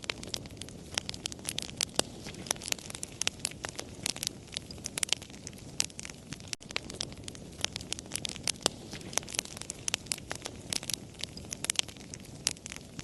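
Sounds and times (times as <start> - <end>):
low rustle of burning: 0.0 - 13.0
wood fire crackling: 0.0 - 13.0.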